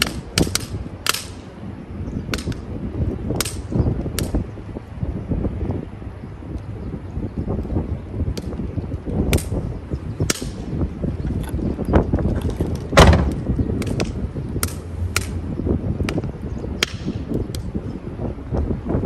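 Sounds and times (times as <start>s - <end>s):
sharp cracks and snaps: 0.0s - 1.5s, 2.3s - 2.7s, 3.3s - 4.4s, 8.3s - 9.6s, 10.2s - 11.6s, 12.3s - 15.4s, 16.0s - 17.7s
wind rumbling on microphone: 0.0s - 19.0s.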